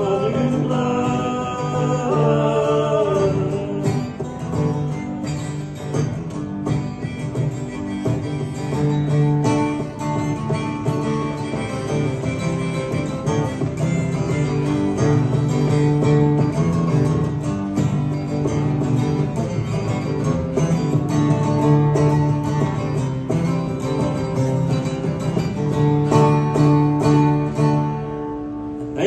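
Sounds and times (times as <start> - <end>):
acoustic guitar country instrumental: 0.0 - 29.0.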